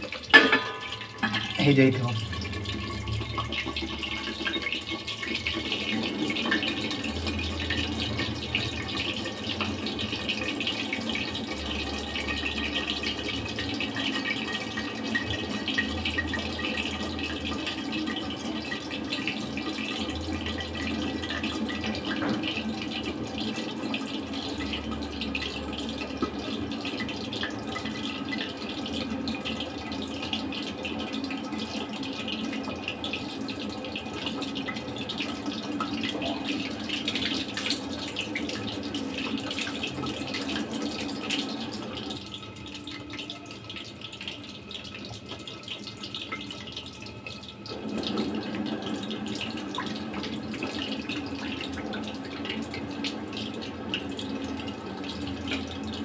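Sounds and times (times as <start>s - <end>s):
chicken sizzling with crackles: 4.0s - 56.0s.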